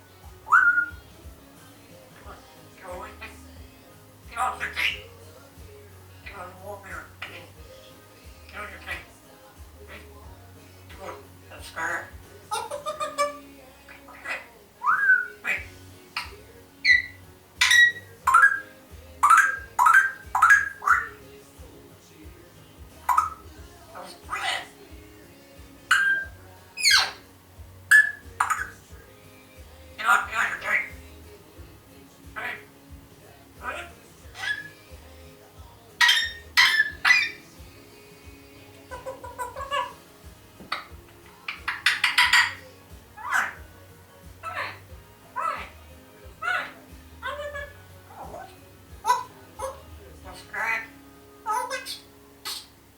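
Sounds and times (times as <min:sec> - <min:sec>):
parrot whistling: 0:00.4 - 0:01.0, 0:14.1 - 0:21.2, 0:23.1 - 0:23.4, 0:25.9 - 0:27.2, 0:27.9 - 0:28.8, 0:33.6 - 0:34.8, 0:36.0 - 0:37.5, 0:38.9 - 0:40.0, 0:40.7 - 0:43.6
parrot squawking: 0:00.4 - 0:01.1, 0:02.2 - 0:03.5, 0:04.3 - 0:05.2, 0:06.2 - 0:07.6, 0:08.5 - 0:09.2, 0:10.9 - 0:21.3, 0:23.0 - 0:24.8, 0:25.8 - 0:27.3, 0:27.9 - 0:28.9, 0:30.0 - 0:31.4, 0:32.3 - 0:32.8, 0:33.4 - 0:34.9, 0:35.9 - 0:37.6, 0:38.7 - 0:43.7, 0:44.4 - 0:52.8
parrot mumbled chatter: 0:04.3 - 0:05.0, 0:10.9 - 0:21.2, 0:23.1 - 0:24.8, 0:27.9 - 0:28.8, 0:30.0 - 0:31.0, 0:32.4 - 0:32.7, 0:33.6 - 0:34.8, 0:36.0 - 0:37.4, 0:38.9 - 0:40.1, 0:40.7 - 0:43.6, 0:44.4 - 0:52.7.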